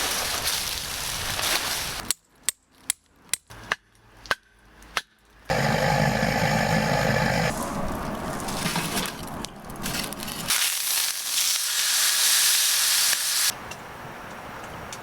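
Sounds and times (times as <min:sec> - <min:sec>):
firewood crackling and popping: 0:07.5 - 0:11.8
loud steady hiss: 0:11.2 - 0:13.6.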